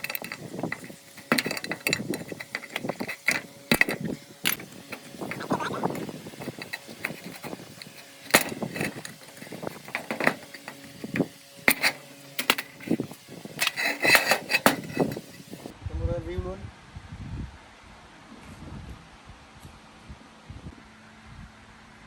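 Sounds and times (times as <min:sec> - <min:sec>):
hand tools clinking on metal: 0:00.0 - 0:15.7.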